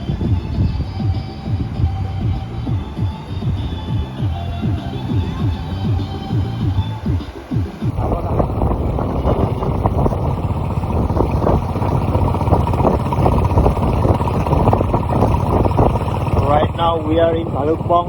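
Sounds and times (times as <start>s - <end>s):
motorcycle engine rumble: 0.0s - 7.0s, 7.9s - 18.0s
wind buffeting microphone: 0.0s - 7.0s, 7.8s - 18.0s
music: 0.0s - 7.9s.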